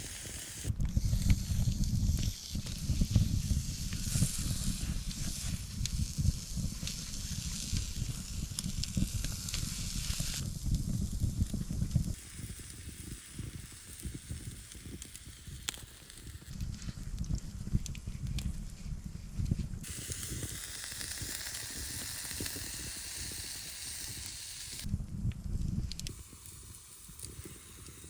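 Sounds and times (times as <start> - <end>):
campfire crackles: 0.0 - 28.0
food sizzling in a pan: 19.8 - 24.9.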